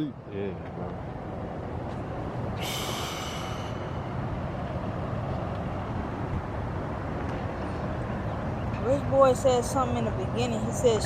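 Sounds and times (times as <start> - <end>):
vehicle engine rumbling: 0.0 - 11.0
high hiss: 2.6 - 4.0.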